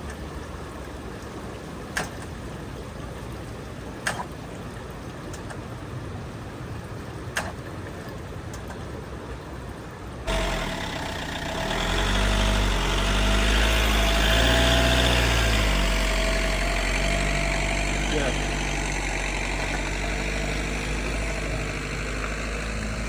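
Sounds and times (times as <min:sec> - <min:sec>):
steady whine: 0:10.3 - 0:23.0
vehicle engine running: 0:10.3 - 0:23.0.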